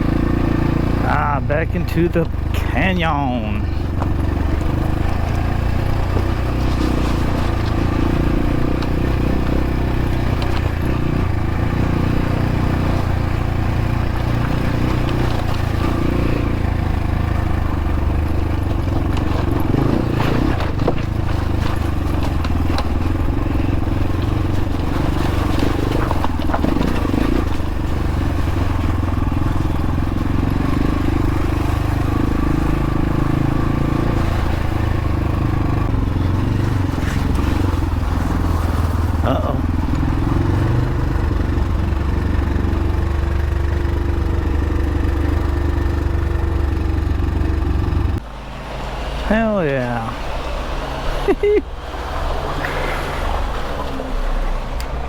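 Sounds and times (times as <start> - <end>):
dirt bike engine running: 0.0 - 55.0
bike knocking over rough ground: 4.9 - 8.2, 17.4 - 32.0.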